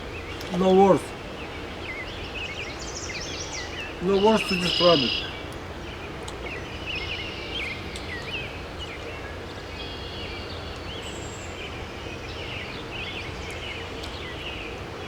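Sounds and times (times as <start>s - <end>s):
small birds chirping: 0.0s - 9.0s
outdoor background hum: 0.0s - 15.0s.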